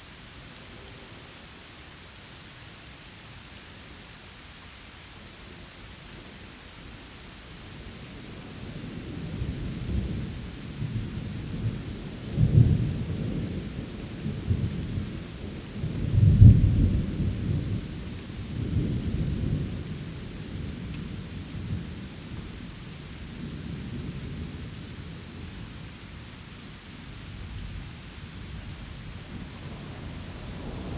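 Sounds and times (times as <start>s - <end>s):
steady rain: 0.0s - 30.9s
rolling thunder: 9.1s - 22.5s, 28.8s - 30.9s.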